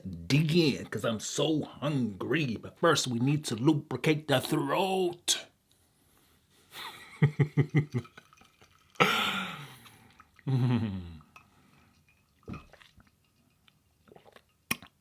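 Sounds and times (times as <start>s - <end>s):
man gulping: 6.9s - 13.2s, 14.0s - 15.0s
man exhaling ahh: 9.0s - 10.0s.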